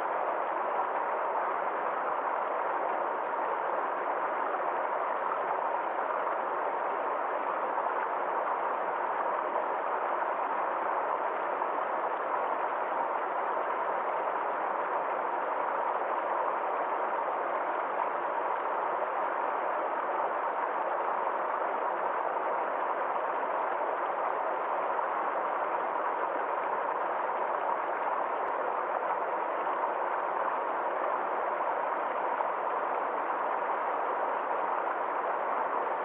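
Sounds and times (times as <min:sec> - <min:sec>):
stream flowing over waterfall: 0:00.0 - 0:36.0.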